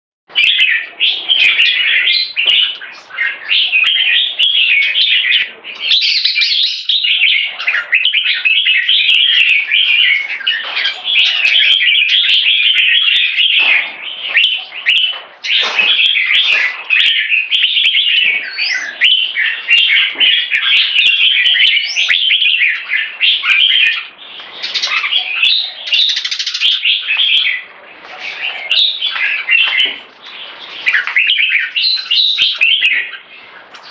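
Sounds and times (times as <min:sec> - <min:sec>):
bird singing warbled phrases: 0:00.3 - 0:33.9.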